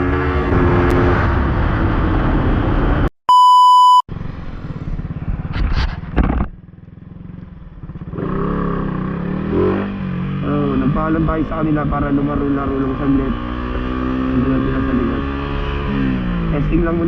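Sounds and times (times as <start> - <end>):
high beep: 3.3 - 4.1
motorcycle engine revving: 4.1 - 17.0.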